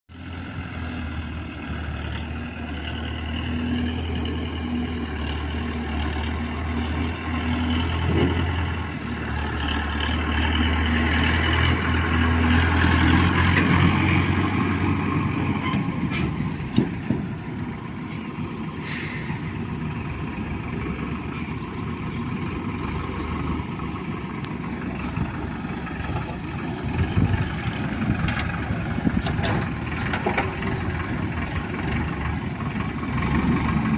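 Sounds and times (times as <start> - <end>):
heavy diesel engine running: 0.1 - 33.9
engine knocks: 12.6 - 17.5, 24.9 - 33.9.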